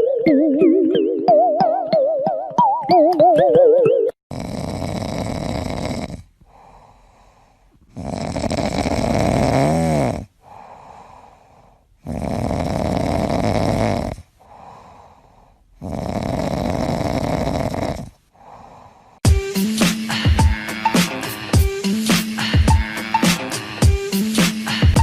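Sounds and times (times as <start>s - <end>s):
loud rasping snoring: 4.3s - 7.1s, 7.8s - 11.2s, 12.0s - 15.0s, 15.8s - 18.9s, 19.8s - 25.0s
quiet breaths: 4.3s - 19.2s.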